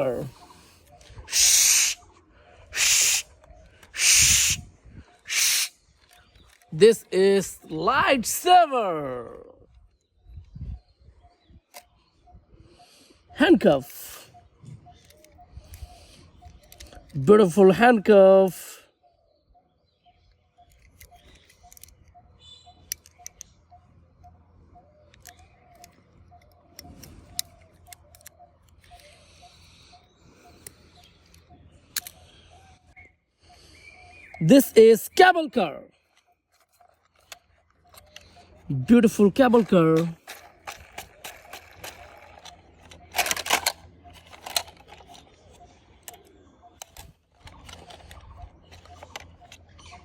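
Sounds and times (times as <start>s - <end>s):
rustling hiss: 2.8s - 3.2s, 4.0s - 4.6s
plastic toys clicking and rattling: 20.6s - 22.1s, 22.8s - 23.5s, 25.1s - 29.4s, 30.5s - 32.2s, 36.0s - 50.0s
rustling clatter: 40.2s - 46.2s, 46.8s - 49.7s.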